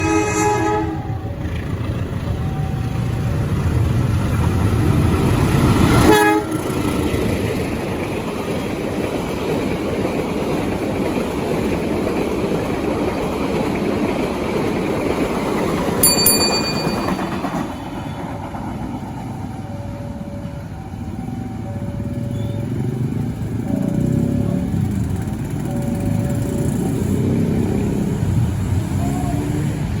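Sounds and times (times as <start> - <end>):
train horn: 0.0 - 1.3, 5.9 - 6.9
train rumbling on rails: 0.0 - 30.0
level crossing warning beeps: 1.0 - 4.4, 19.0 - 27.9.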